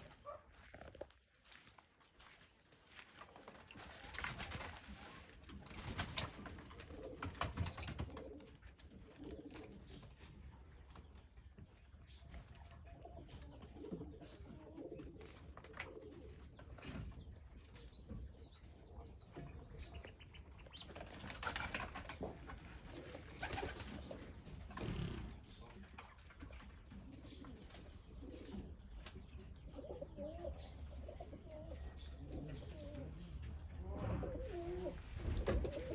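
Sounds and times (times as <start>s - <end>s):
birds cooing: 6.4s - 10.3s, 12.8s - 26.0s, 26.6s - 35.9s.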